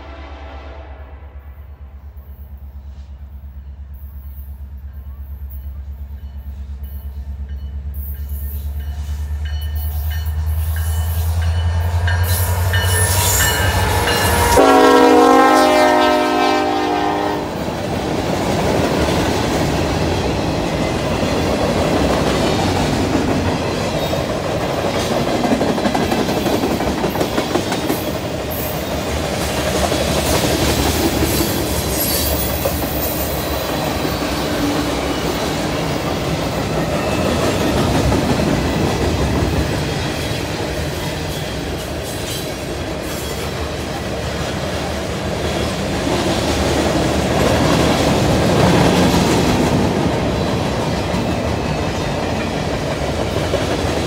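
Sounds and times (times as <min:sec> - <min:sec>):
train horn blast: 0:00.0 - 0:01.8, 0:11.3 - 0:17.8.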